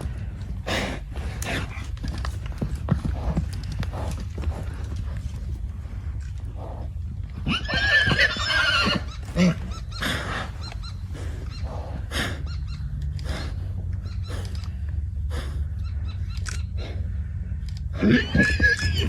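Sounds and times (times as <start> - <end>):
steady low rumble: 0.0 - 19.0
horse whinnying: 7.4 - 10.6, 18.0 - 19.0.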